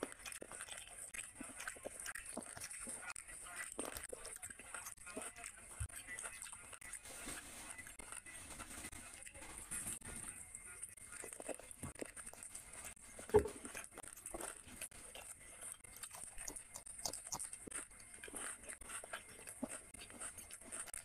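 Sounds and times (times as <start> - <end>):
wet chewing and smacking: 0.0 - 21.0
small mouth clicks: 16.0 - 19.7.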